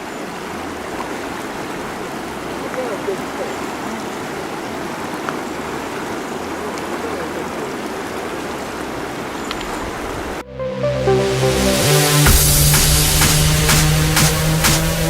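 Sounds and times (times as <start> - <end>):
rushing running water: 0.0 - 10.4, 11.0 - 15.0
electronic music: 10.4 - 15.0.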